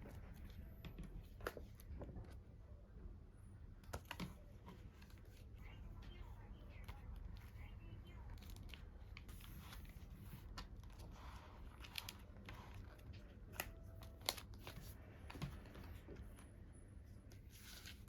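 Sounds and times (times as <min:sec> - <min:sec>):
plastic rustling: 0:08.3 - 0:16.2.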